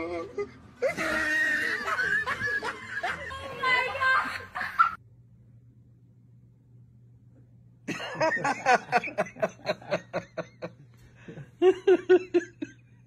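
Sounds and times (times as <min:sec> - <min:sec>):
person laughing: 0:00.0 - 0:05.0, 0:07.9 - 0:12.9
low steady hum: 0:00.0 - 0:13.0.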